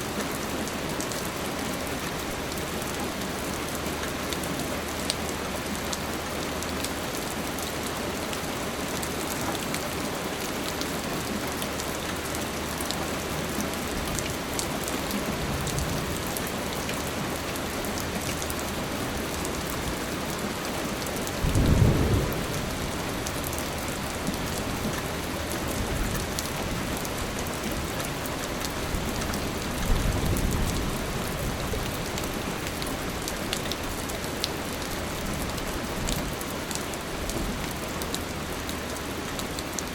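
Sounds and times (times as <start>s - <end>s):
rain falling: 0.0s - 39.9s
thunder rolling: 21.4s - 23.2s.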